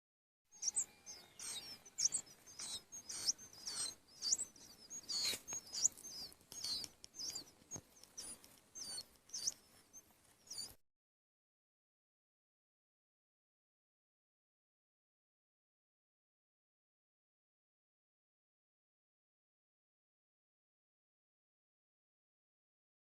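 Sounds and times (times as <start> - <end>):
nestling birds chirping: 0.5 - 10.8.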